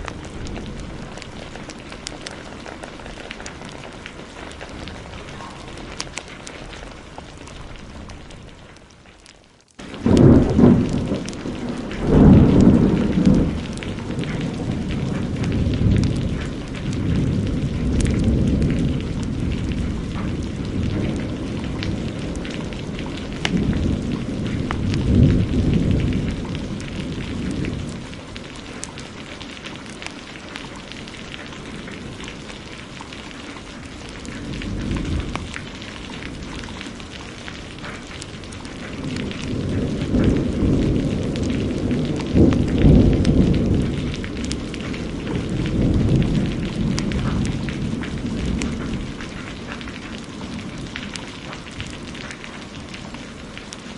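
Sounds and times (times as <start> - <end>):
rolling thunder: 0.0 - 8.5, 9.8 - 29.1, 30.8 - 53.9
heavy rain hissing: 0.0 - 9.0, 9.8 - 53.9
wood fire crackling: 0.0 - 53.9.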